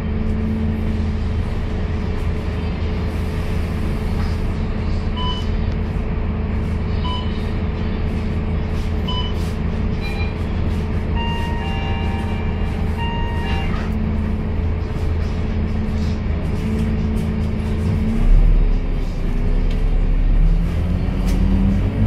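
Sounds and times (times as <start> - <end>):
bus engine running: 0.0 - 22.0
longer beeps: 7.0 - 7.4, 11.2 - 13.8
short electronic beeps: 7.0 - 7.4, 9.0 - 9.4, 10.0 - 10.4.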